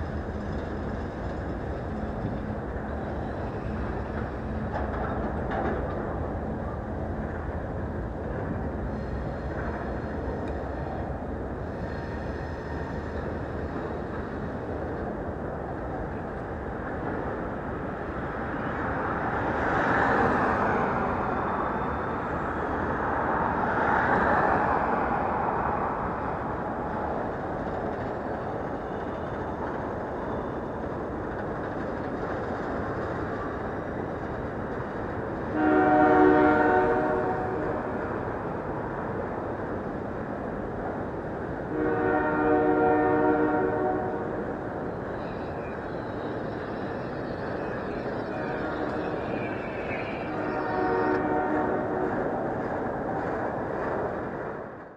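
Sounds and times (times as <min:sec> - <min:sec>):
freight train wheels rumbling: 0:00.0 - 0:54.9
locomotive horn blast: 0:35.5 - 0:37.8, 0:41.7 - 0:44.3, 0:48.3 - 0:49.3, 0:50.2 - 0:52.2.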